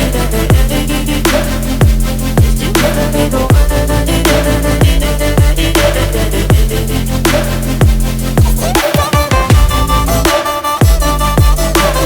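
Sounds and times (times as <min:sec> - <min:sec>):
electronic pop music: 0:00.0 - 0:12.0
heavy kick drums: 0:00.5 - 0:00.9, 0:01.8 - 0:02.9, 0:03.5 - 0:03.9, 0:04.8 - 0:06.9, 0:07.7 - 0:12.0
held bass note: 0:09.5 - 0:12.0.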